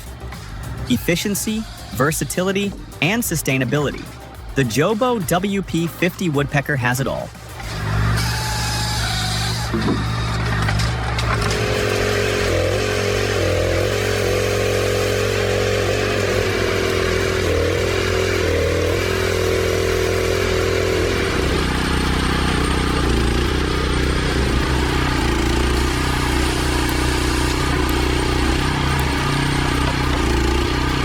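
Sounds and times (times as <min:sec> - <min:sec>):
machine engine running: 0:07.3 - 0:31.0.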